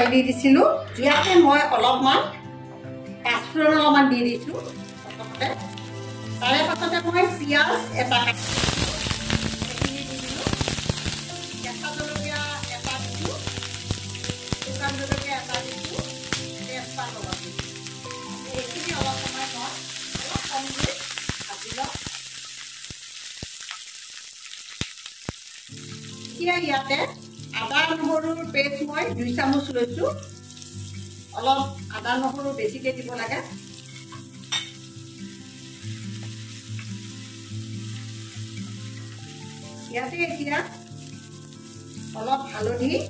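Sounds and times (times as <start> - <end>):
onions sizzling in oil: 3.3 - 43.0
spatula scraping a pan: 33.6 - 34.9.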